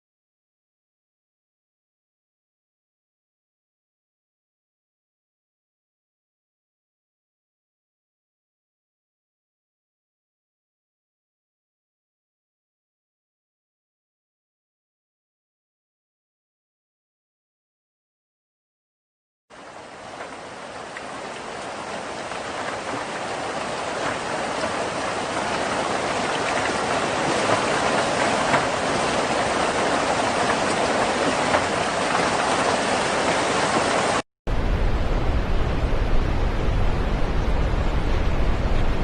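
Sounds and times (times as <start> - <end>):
rain hissing: 19.6 - 39.0
deep rumble: 34.5 - 39.0.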